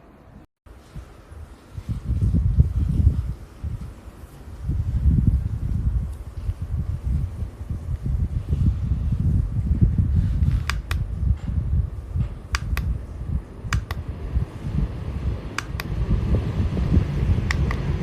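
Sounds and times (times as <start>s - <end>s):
fan airflow buffeting microphone: 0.0s - 18.0s
sharp double clicks: 10.4s - 11.1s, 12.5s - 13.0s, 13.7s - 14.0s, 15.6s - 16.0s, 17.5s - 17.9s.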